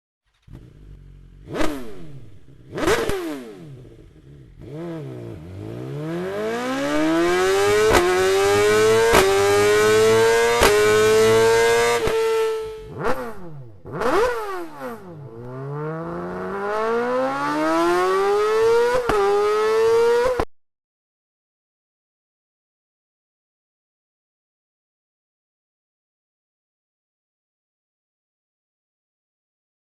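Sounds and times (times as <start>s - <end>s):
motorcycle engine revving: 0.2s - 20.5s
exhaust crack at gear change: 0.3s - 4.6s.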